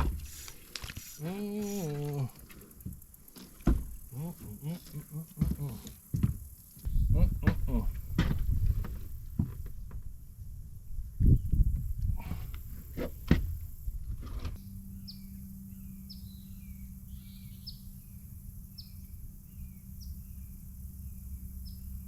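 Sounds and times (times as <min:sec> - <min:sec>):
bird calling: 0:00.0 - 0:09.1
handling knocks: 0:00.0 - 0:10.1, 0:11.7 - 0:14.6
steady low hum: 0:00.0 - 0:22.0.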